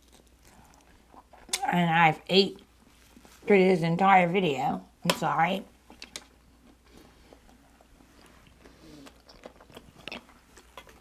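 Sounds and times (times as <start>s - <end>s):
person chewing: 0.0s - 1.7s, 5.9s - 11.0s.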